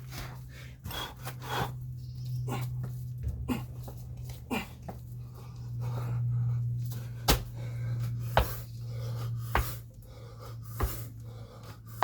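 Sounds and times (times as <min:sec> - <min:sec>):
hard panting breaths: 0:00.0 - 0:12.0
steady low hum: 0:00.0 - 0:12.0
feet landing thuds: 0:07.2 - 0:08.7, 0:09.4 - 0:09.9, 0:10.7 - 0:11.1.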